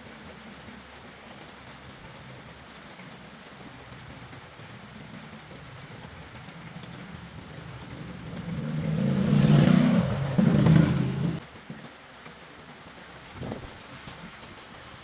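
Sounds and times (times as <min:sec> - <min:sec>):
car engine: 0:05.9 - 0:11.4.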